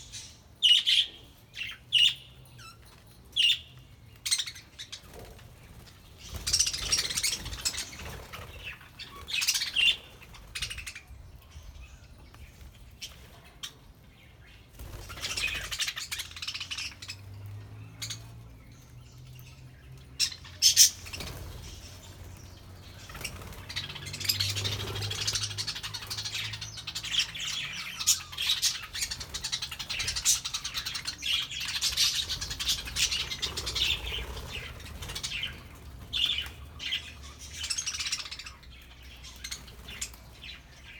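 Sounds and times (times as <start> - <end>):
budgerigars chattering and chirping: 6.0 - 11.2, 14.8 - 17.2, 19.4 - 40.9.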